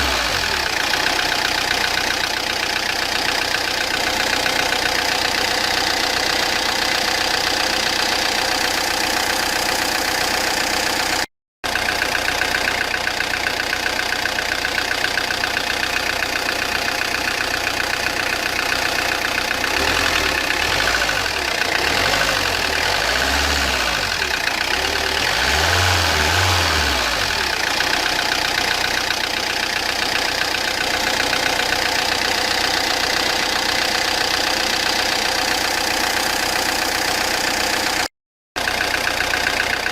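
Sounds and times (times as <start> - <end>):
diesel engine knocking: 0.0 - 39.9.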